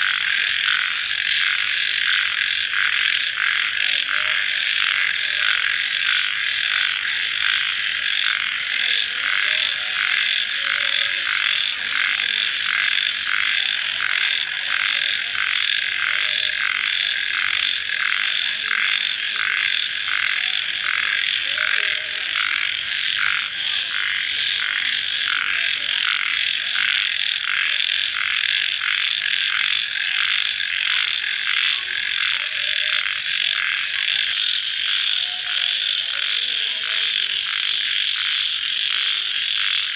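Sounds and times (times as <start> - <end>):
insects and frogs calling: 0.0 - 39.9.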